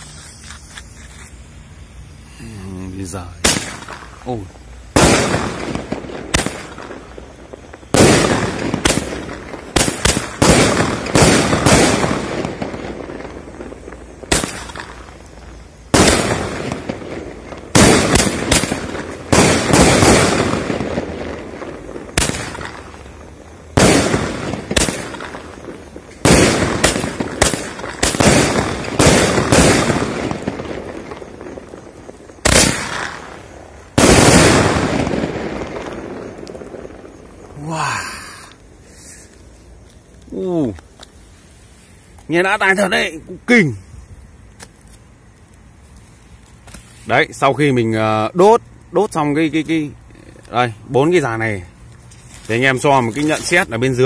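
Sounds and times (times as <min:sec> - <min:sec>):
fireworks bangs echoing: 0:02.9 - 0:37.7.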